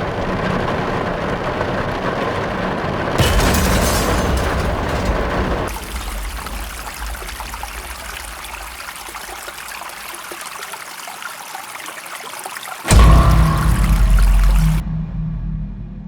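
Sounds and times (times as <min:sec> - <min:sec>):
trickling pouring noise: 0:03.2 - 0:14.8
loud low rumble: 0:12.9 - 0:16.0.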